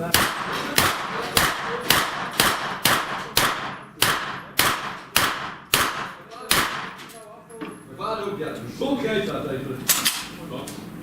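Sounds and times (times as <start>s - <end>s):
rapid gunshots: 0.0s - 7.0s.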